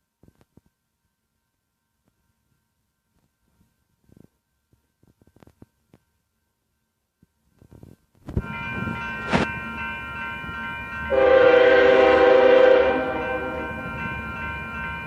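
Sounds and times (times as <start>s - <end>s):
freight train rumble: 7.7s - 15.0s
railroad crossing bells ringing: 8.4s - 15.0s
locomotive air horn blast: 11.1s - 13.8s.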